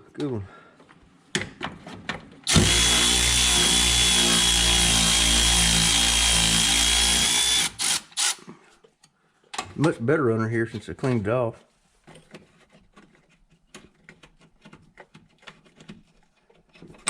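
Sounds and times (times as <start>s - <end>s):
power tool whining: 2.4s - 8.4s.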